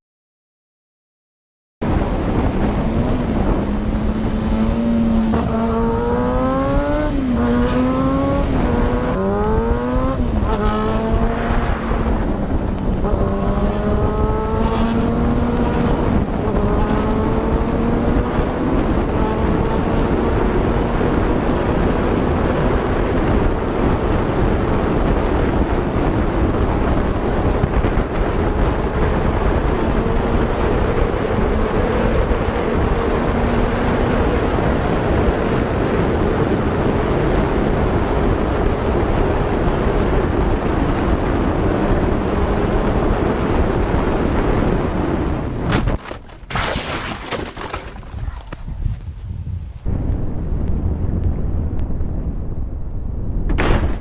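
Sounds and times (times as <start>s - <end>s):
road and wind noise: 1.8s - 54.0s
car engine accelerating: 2.2s - 38.6s.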